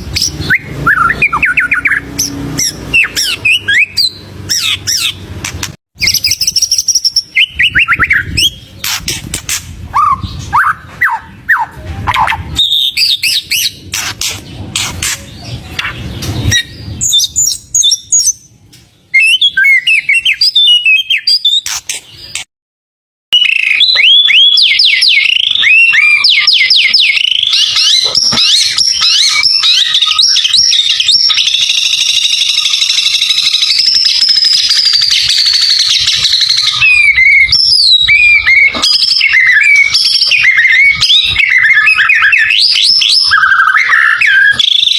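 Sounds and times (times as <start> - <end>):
songbird singing varied song: 23.4 - 44.9.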